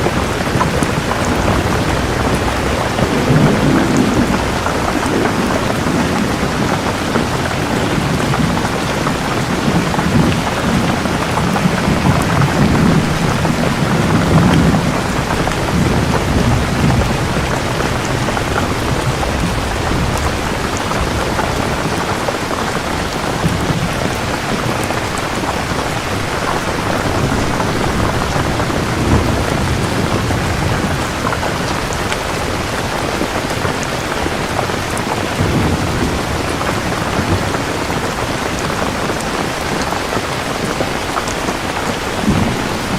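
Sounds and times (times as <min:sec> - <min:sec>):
low rolling thunder: 0:00.0 - 0:42.9
steady rain falling: 0:00.0 - 0:42.9.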